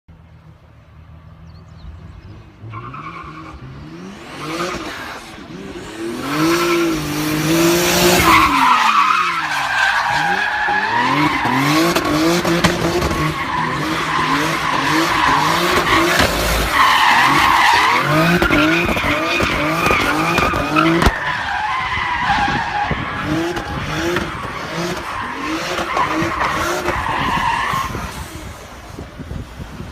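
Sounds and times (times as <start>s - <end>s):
car engine revving: 2.0s - 28.3s.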